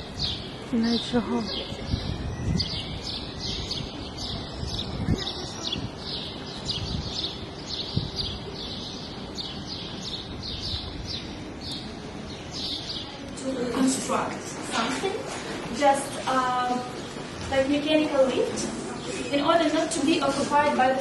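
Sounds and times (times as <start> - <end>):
small birds chirping: 0.0 - 13.6
low wind rumble: 0.0 - 18.7.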